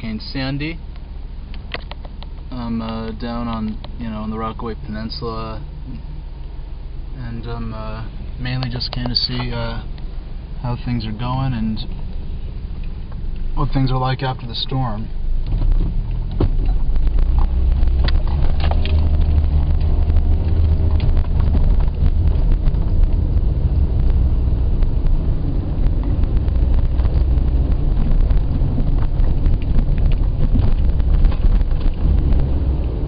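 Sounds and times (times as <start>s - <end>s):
car engine and tyre rumble: 0.0s - 33.0s
faint rattles and clicks: 0.9s - 4.0s, 8.4s - 10.1s, 15.4s - 23.4s, 25.8s - 33.0s.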